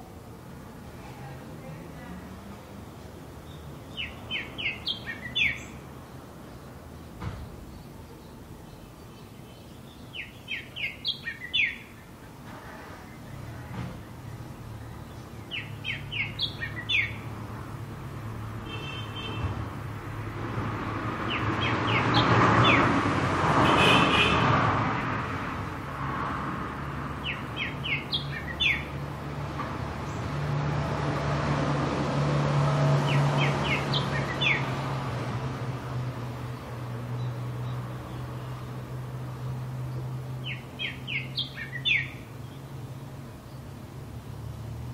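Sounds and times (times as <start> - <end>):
traffic rush: 0.0 - 44.9
bird chirping: 3.0 - 12.2, 13.0 - 17.4, 21.2 - 23.0, 27.2 - 29.1, 33.0 - 34.9, 39.4 - 43.8.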